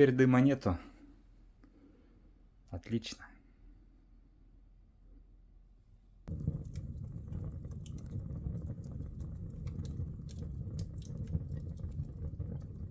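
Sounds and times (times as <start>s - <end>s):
wood fire crackling and popping: 6.3s - 12.9s.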